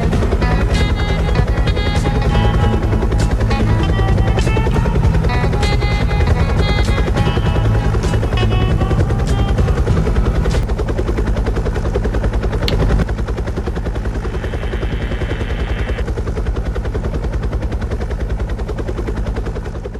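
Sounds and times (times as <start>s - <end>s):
music playing: 0.0s - 10.7s
helicopter rotor chopping: 0.0s - 19.9s.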